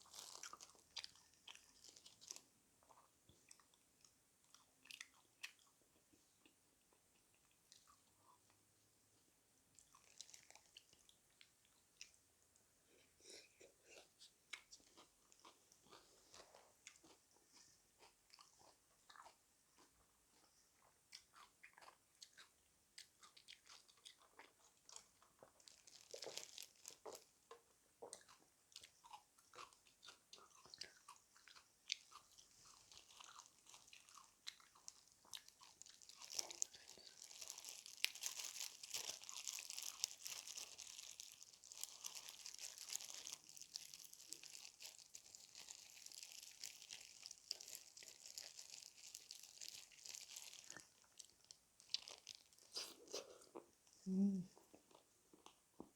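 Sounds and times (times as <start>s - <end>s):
chewing: 0.0s - 8.5s, 13.0s - 53.8s
crunching bites of fried chicken: 21.1s - 52.9s.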